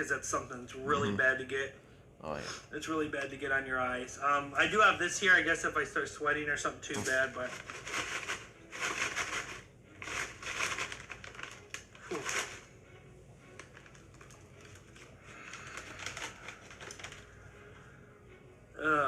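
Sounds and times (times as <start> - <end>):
chip bag crinkling: 7.0 - 12.7, 13.5 - 17.4.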